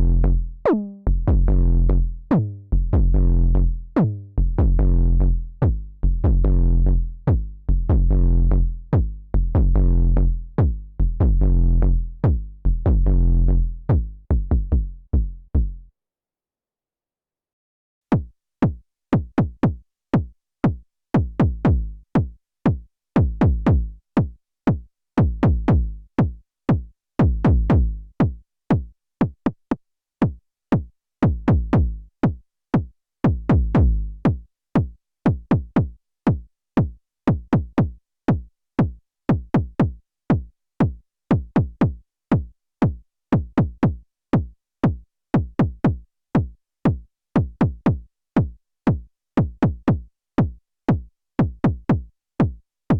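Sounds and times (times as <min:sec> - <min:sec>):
deep bass notes: 0:00.0 - 0:15.9, 0:23.3 - 0:24.0, 0:25.3 - 0:26.1, 0:27.3 - 0:28.2, 0:31.3 - 0:32.1, 0:33.4 - 0:34.2.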